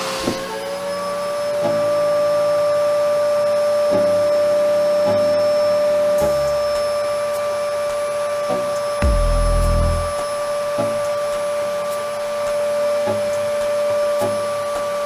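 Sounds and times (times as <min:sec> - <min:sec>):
stepper motor tones: 0:09.0 - 0:10.2.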